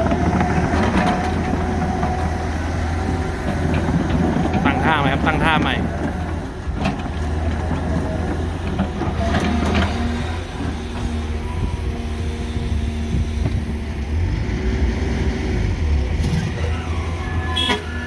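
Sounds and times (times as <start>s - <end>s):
excavator diesel engine straining: 0.0s - 18.0s.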